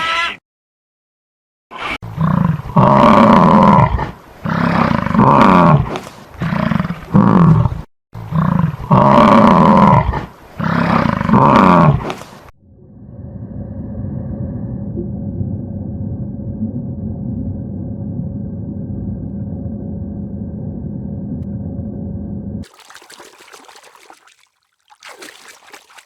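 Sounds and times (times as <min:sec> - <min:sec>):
animal calling loudly: 0:00.0 - 0:00.4.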